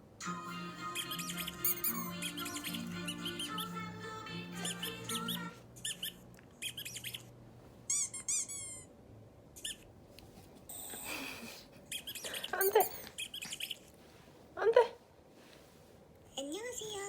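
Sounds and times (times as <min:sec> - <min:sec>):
high-pitched squeaking and chirping: 0:00.9 - 0:03.8, 0:04.6 - 0:07.3, 0:07.9 - 0:08.9, 0:09.6 - 0:09.9, 0:11.9 - 0:13.9.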